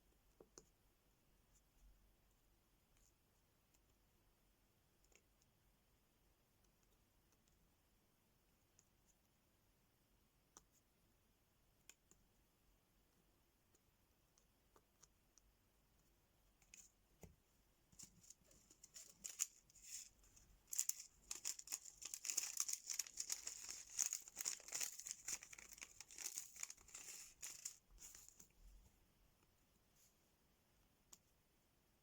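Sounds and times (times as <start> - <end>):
plastic crinkling: 18.0 - 28.4.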